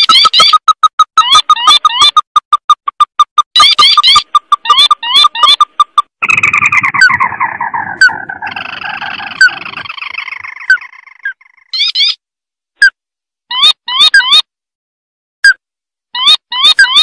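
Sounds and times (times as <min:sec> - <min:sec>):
crake calling: 0:03.4 - 0:12.1.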